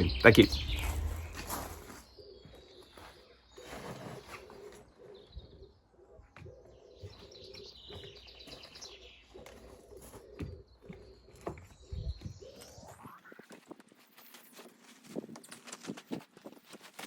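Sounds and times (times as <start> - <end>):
pigeon cooing: 0.0 - 11.2.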